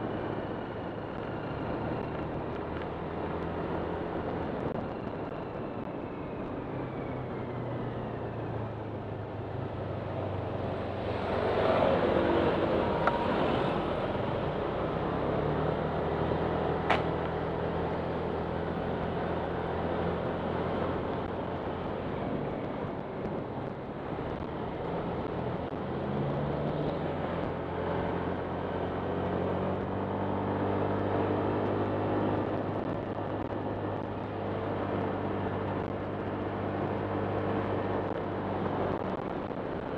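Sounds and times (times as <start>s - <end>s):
wind and road noise: 0.0s - 39.9s
sharp click: 16.9s - 17.2s.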